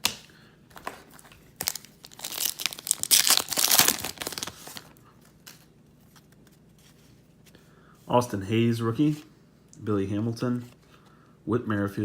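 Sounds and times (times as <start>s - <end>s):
foil wrapper crinkling: 0.7s - 6.4s.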